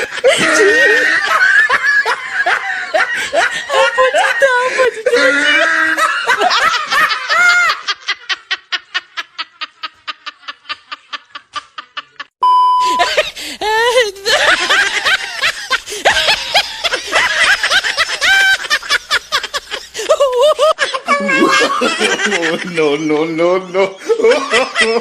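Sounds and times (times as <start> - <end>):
rapid rhythmic laughter: 0.0 - 12.3, 13.1 - 22.9
short beep: 12.4 - 13.0.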